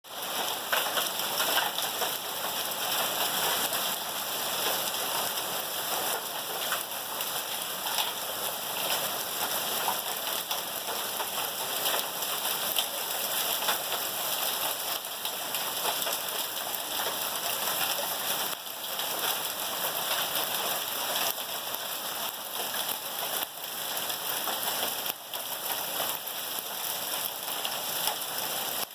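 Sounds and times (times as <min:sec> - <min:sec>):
hail and heavy rain: 0:00.1 - 0:28.9
hailstones ticking: 0:00.2 - 0:28.9.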